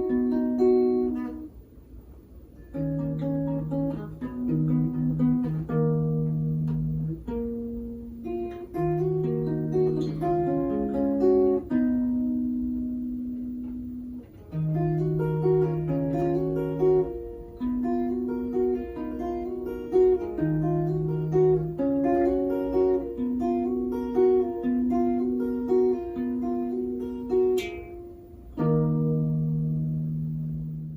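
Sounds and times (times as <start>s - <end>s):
guitar chord ringing: 0.0s - 1.6s, 2.5s - 30.9s
fingerstyle guitar melody: 0.0s - 30.9s.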